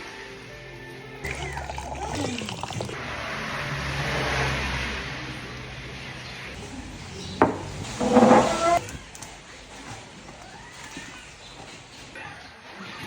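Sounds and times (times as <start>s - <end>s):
vehicle passing on wet road: 3.0s - 5.9s.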